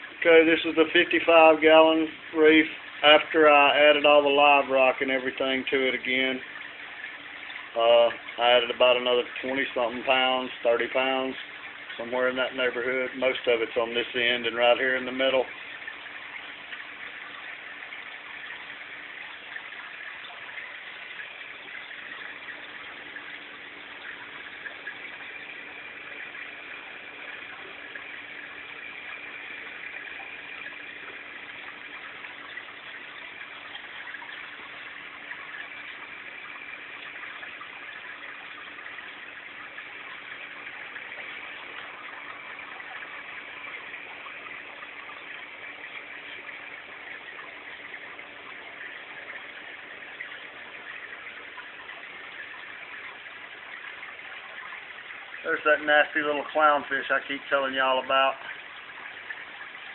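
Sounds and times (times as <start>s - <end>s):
rushing aquarium water: 0.0s - 59.9s.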